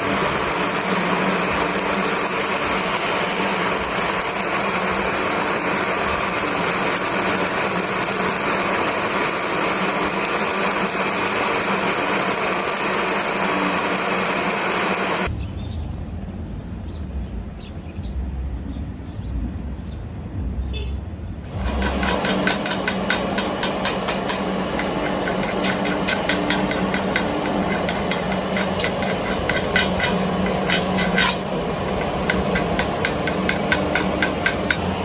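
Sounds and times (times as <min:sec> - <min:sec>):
welding arc crackling and popping: 0:00.0 - 0:15.3, 0:21.5 - 0:35.0
low hum: 0:00.0 - 0:35.0
low rumble: 0:15.3 - 0:22.1.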